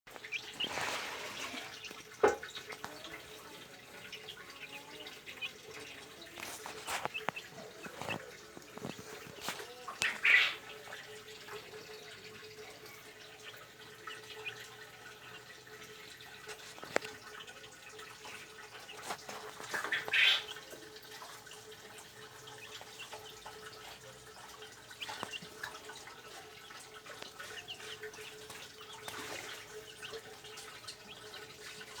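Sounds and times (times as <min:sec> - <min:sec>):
birds pecking clicks: 0:01.7 - 0:12.6.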